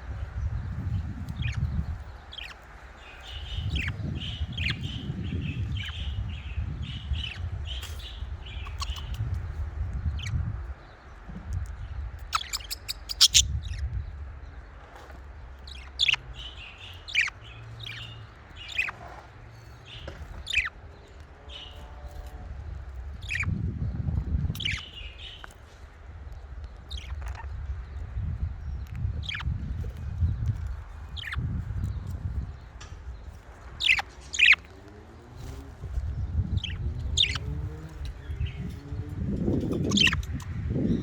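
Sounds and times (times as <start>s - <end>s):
budgerigars chattering: 1.3s - 6.2s, 6.9s - 9.3s, 12.2s - 13.8s, 15.7s - 19.2s, 19.9s - 20.8s, 23.2s - 23.6s, 24.6s - 25.5s, 29.2s - 29.6s, 31.1s - 31.5s, 33.7s - 34.7s, 36.4s - 38.7s, 39.6s - 40.6s
sharp loud bird calls: 12.2s - 13.8s, 33.7s - 35.5s, 36.4s - 38.9s, 39.5s - 41.0s
low rumble: 26.1s - 41.0s.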